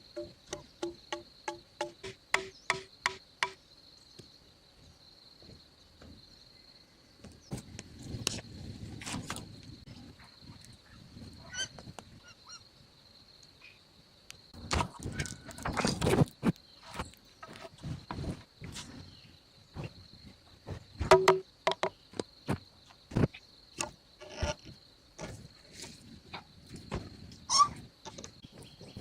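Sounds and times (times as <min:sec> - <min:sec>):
high insect drone: 0:00.0 - 0:29.0
sharp knocks: 0:00.1 - 0:03.6, 0:21.0 - 0:22.0.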